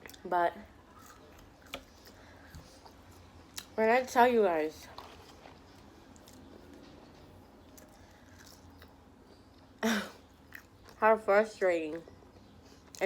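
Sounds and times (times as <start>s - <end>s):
person chewing food: 0.9s - 3.8s, 4.9s - 11.0s.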